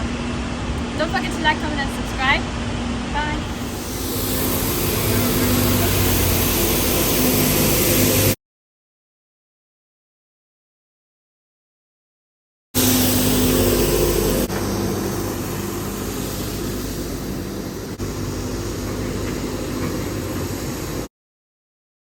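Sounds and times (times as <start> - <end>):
mechanical drone: 1.6 - 8.4, 12.8 - 21.1.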